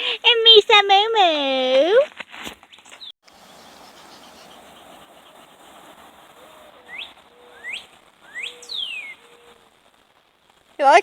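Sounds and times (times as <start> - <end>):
faint steady hiss: 3.3 - 11.0
bird whistled chirps: 6.9 - 9.2.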